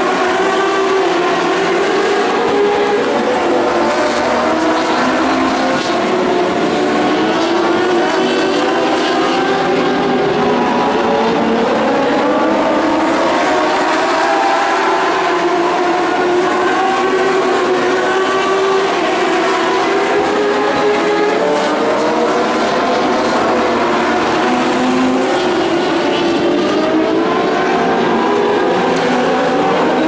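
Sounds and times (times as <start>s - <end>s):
race car engines revving: 0.0s - 30.0s.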